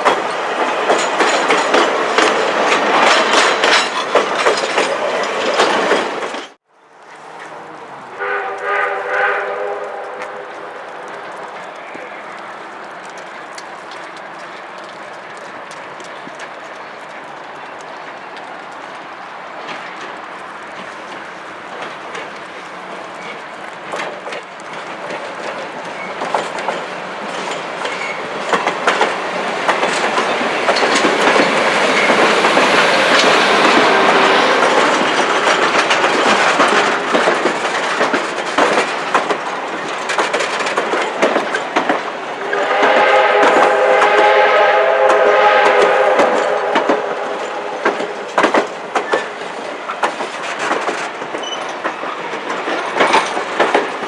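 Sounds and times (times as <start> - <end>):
train wheels clicking over rail joints: 0.0 - 6.6, 8.5 - 54.0
train horn chord: 8.1 - 10.6, 42.4 - 47.8.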